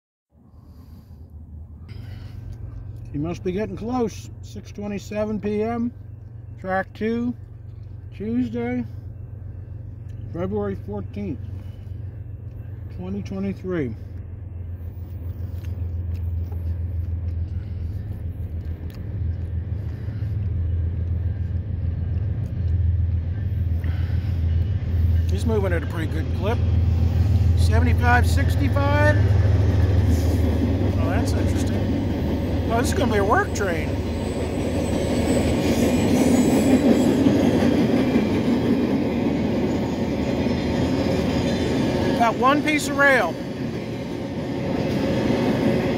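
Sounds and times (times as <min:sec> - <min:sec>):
diesel locomotive rumble: 0:00.3 - 0:45.9
steel train wheels on rails: 0:10.9 - 0:45.9.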